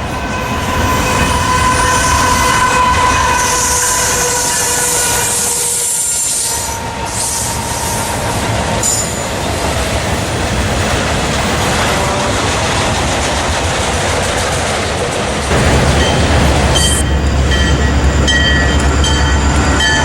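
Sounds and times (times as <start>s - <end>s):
high wheel squeals: 0.0s - 10.7s, 15.5s - 20.0s
train wheels clattering on rail: 0.0s - 20.0s.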